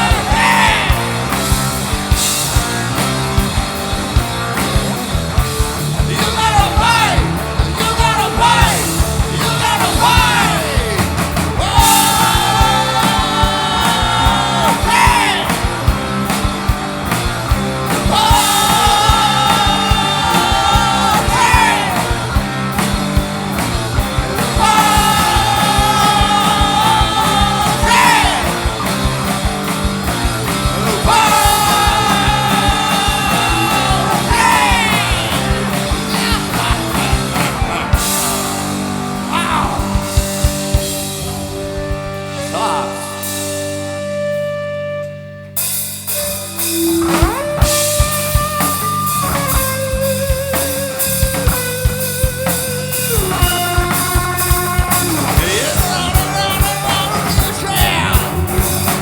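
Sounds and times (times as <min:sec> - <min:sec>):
drums: 0:00.0 - 0:59.0
electric guitar: 0:00.0 - 0:59.0
person singing: 0:06.0 - 0:15.8, 0:17.9 - 0:22.4, 0:24.4 - 0:29.1, 0:30.5 - 0:40.9, 0:42.2 - 0:43.9, 0:50.5 - 0:59.0.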